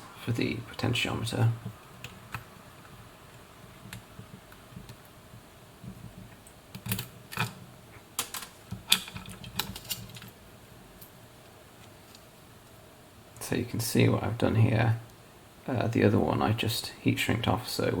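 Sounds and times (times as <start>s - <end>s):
low steady hum: 0.0s - 18.0s
small parts clicking and tapping: 5.8s - 7.6s, 8.2s - 10.4s.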